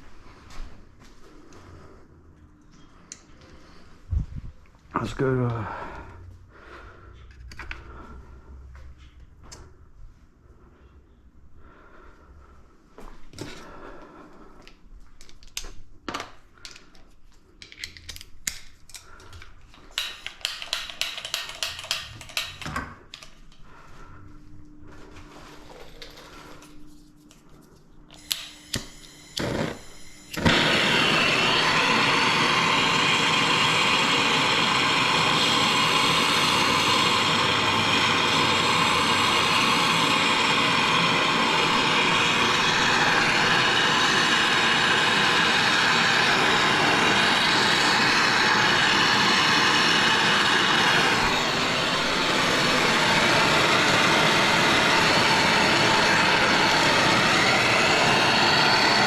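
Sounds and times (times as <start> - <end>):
loud machine running: 28.2 - 59.0.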